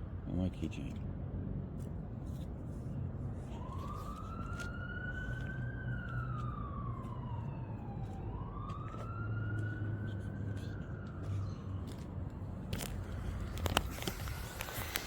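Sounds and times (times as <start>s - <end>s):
emergency siren wailing: 3.4s - 14.1s.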